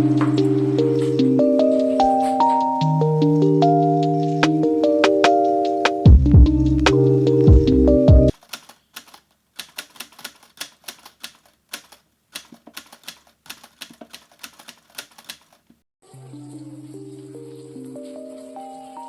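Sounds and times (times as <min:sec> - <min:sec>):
music: 0:00.0 - 0:08.3, 0:16.0 - 0:19.0
keyboard typing clicks: 0:08.3 - 0:15.6.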